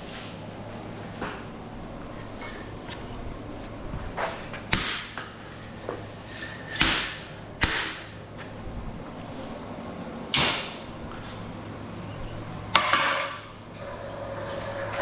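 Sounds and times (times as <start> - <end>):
tools clattering on workbench: 5.2 - 7.4.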